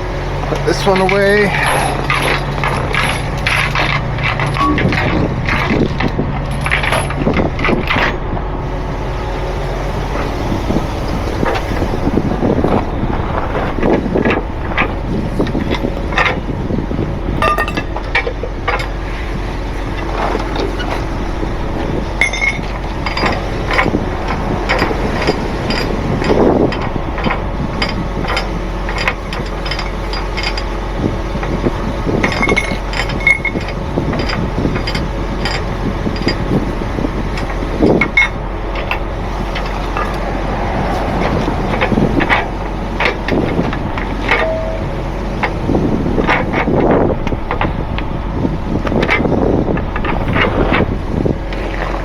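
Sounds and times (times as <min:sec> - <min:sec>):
truck engine idling: 0:00.0 - 0:52.0
metallic clanks of chains: 0:00.6 - 0:08.2, 0:17.4 - 0:18.9, 0:22.2 - 0:30.7, 0:32.1 - 0:36.8, 0:37.4 - 0:40.3, 0:40.9 - 0:45.5.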